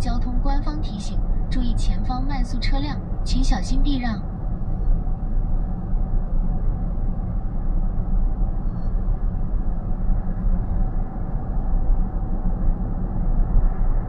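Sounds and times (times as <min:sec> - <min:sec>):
faint steady hum: 0:00.0 - 0:14.0
road and tyre noise in car: 0:00.0 - 0:14.0.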